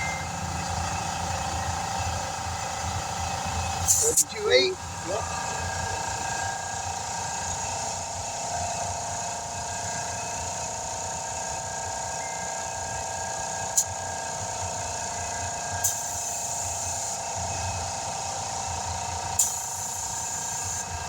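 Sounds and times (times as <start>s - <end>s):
machine humming: 0.0s - 7.7s.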